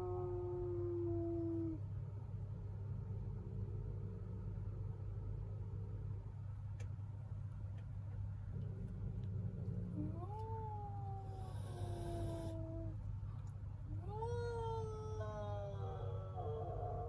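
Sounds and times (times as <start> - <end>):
cat growling: 8.5 - 13.0
cat yowling: 10.0 - 13.0, 14.0 - 16.6.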